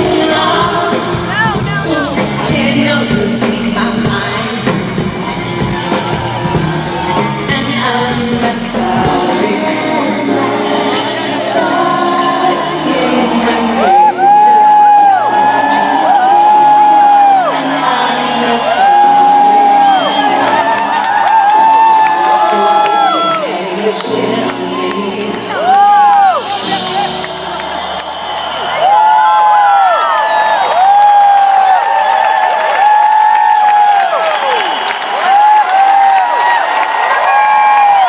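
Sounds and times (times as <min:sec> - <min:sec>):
live pop concert music: 0:00.0 - 0:38.0
crowd whooping: 0:04.4 - 0:08.1, 0:11.6 - 0:23.7, 0:24.4 - 0:38.0.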